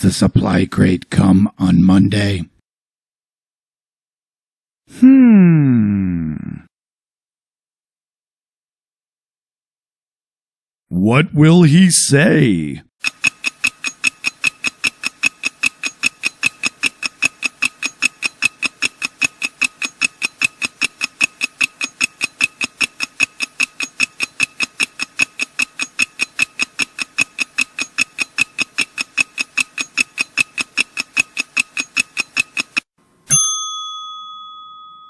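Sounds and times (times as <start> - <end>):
clock ticking: 13.0 - 32.9.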